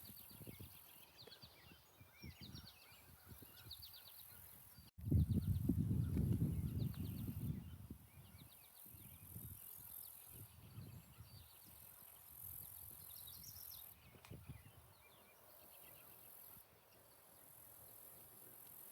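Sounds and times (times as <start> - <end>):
wind gusting on microphone: 0.0 - 0.8, 1.5 - 9.6, 10.3 - 11.8, 12.8 - 15.0
small birds chirping: 0.0 - 18.9
high insect-like hiss: 8.7 - 10.6, 11.6 - 14.0, 15.8 - 18.9.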